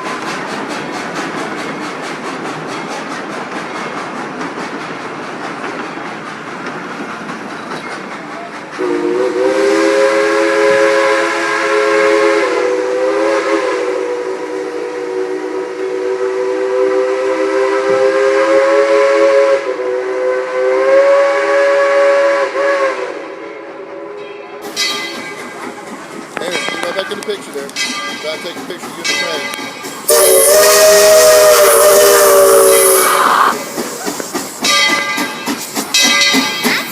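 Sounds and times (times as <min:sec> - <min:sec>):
train rolling with steady hiss: 0:00.0 - 0:36.9
steam locomotive chime whistle: 0:08.8 - 0:25.5, 0:26.4 - 0:36.9.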